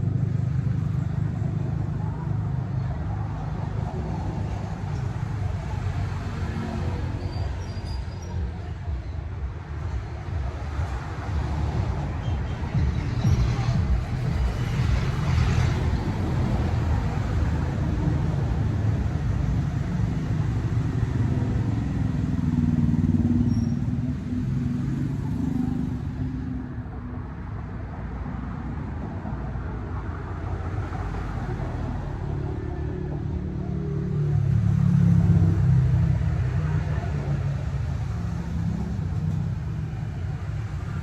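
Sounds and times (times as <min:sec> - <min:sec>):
motorcycle engine rumble: 0:00.0 - 0:26.9
road and wind noise: 0:00.0 - 0:41.0.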